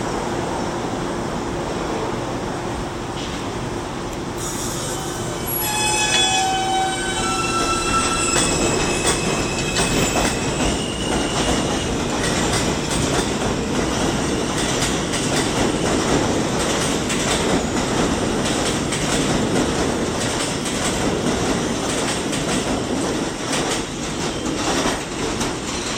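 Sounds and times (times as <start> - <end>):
subway cars rumbling and clattering: 0.0 - 25.9
train wheels squealing: 4.4 - 12.6.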